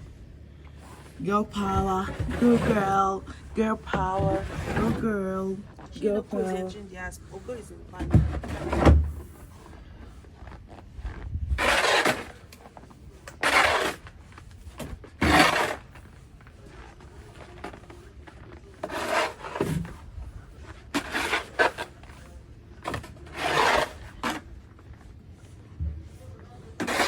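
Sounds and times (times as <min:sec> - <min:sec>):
snow shovel scraping snow: 0:00.8 - 0:06.8, 0:10.7 - 0:18.0, 0:18.8 - 0:24.5, 0:26.6 - 0:27.0.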